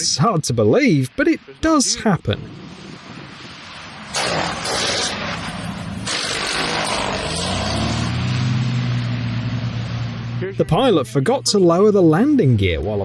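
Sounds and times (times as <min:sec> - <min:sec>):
airplane engine noise: 0:00.0 - 0:13.0
rushing wind: 0:01.7 - 0:11.4
low engine tone rising in pitch: 0:05.2 - 0:12.9.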